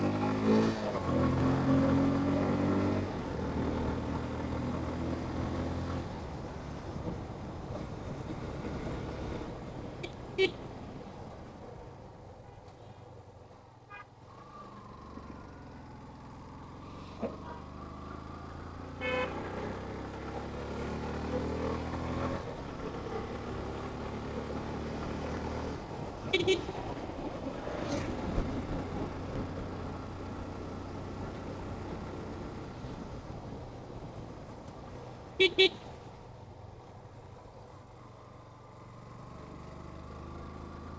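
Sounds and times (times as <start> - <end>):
vehicle horn honking: 10.0 - 10.7, 13.9 - 14.1, 19.0 - 19.5, 26.3 - 26.8, 35.4 - 35.8.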